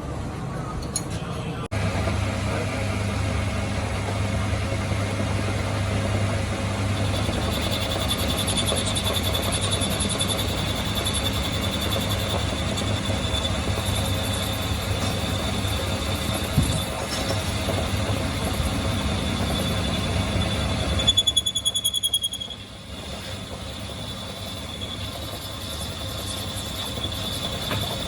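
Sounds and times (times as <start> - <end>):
machine electrical hum: 1.5 - 28.0
high whine: 10.0 - 28.0.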